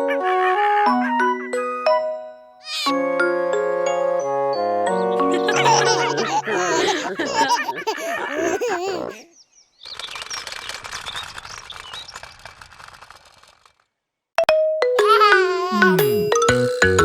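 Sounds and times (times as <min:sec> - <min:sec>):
wavering voice-like sounds: 0:15.7 - 0:16.3
chiming musical jingle: 0:15.8 - 0:17.0.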